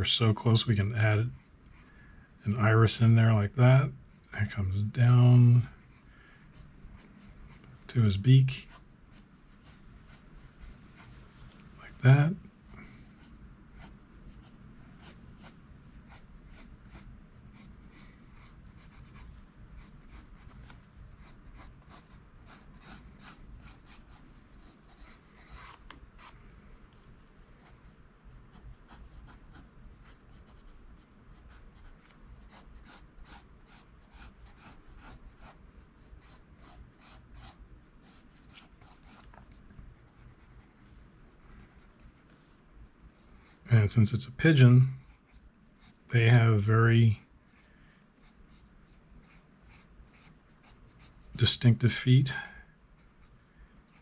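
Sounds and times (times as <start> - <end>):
pencil scratching on paper: 5.8 - 7.7, 8.7 - 11.2, 13.2 - 26.4, 27.6 - 39.2, 39.9 - 42.4, 43.1 - 43.6, 45.0 - 46.0, 47.5 - 51.5, 53.0 - 54.0.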